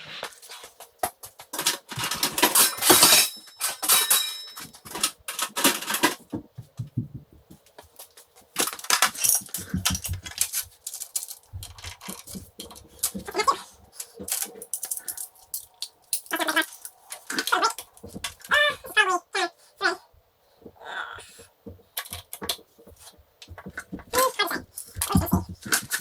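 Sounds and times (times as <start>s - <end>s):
metal tools clinking: 1.5s - 6.3s, 8.0s - 18.6s
dull knocks: 6.3s - 7.6s.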